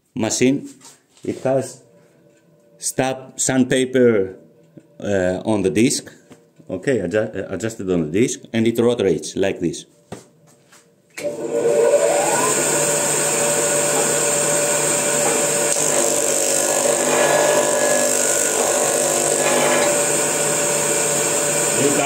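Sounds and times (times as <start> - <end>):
electric disc sander whining: 11.2 - 22.0.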